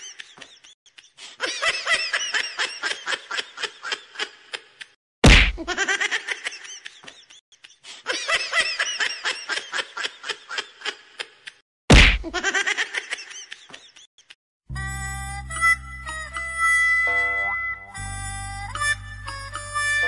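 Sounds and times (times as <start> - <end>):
high-pitched giggling laughter: 0.0 - 5.0, 12.2 - 14.4.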